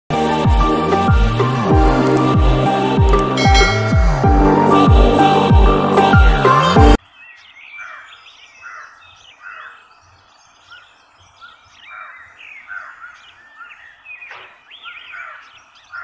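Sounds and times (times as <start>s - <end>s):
birds chirping and calling: 7.0s - 16.0s.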